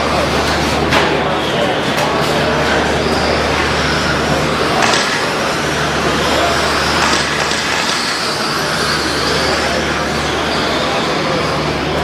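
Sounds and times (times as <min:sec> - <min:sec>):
model trucks racing: 0:00.0 - 0:12.0.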